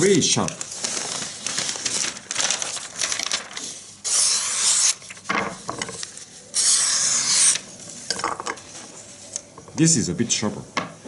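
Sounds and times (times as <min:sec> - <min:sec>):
paper rustling: 0:00.4 - 0:04.0.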